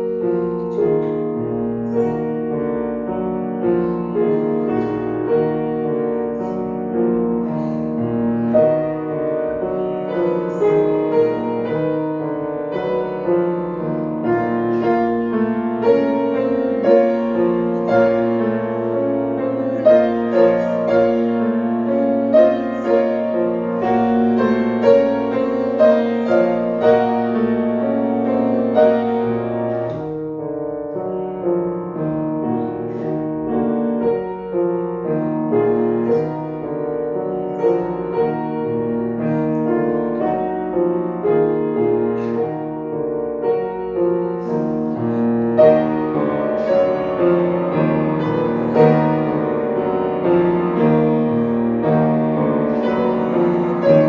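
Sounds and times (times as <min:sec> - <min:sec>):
slow classical piano chords: 0:00.0 - 0:54.0.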